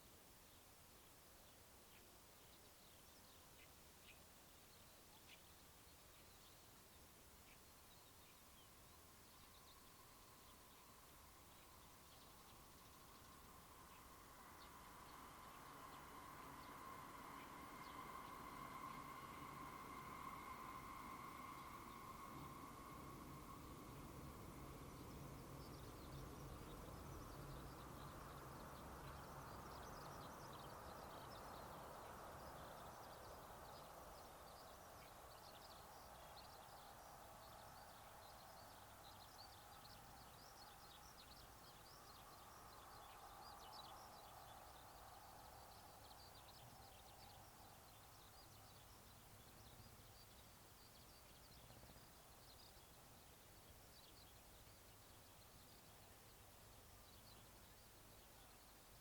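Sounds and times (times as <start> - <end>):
distant hum: 12.5 - 35.2.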